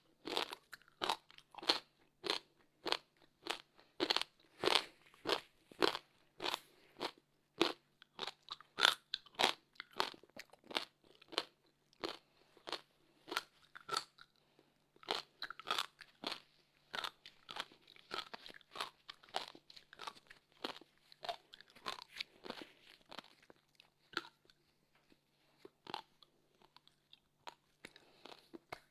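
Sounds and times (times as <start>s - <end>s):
crunching ice between teeth: 15.0s - 24.5s.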